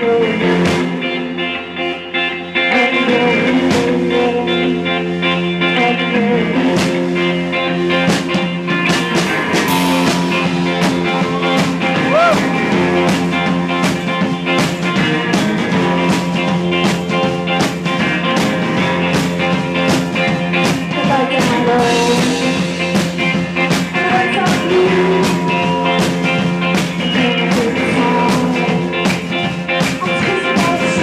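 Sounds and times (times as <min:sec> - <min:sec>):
blues-rock band playing: 0:00.0 - 0:31.0
electric guitar: 0:00.0 - 0:31.0
drum hits: 0:08.2 - 0:21.0.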